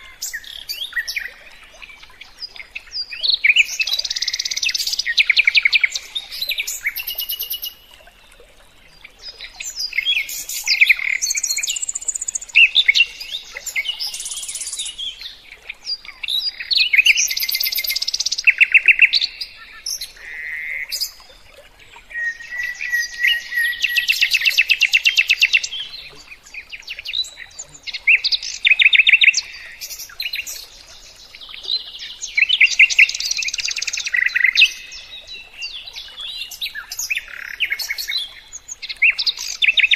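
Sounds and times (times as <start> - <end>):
songbird singing trills: 0.0 - 7.9, 9.0 - 21.2, 22.0 - 39.9.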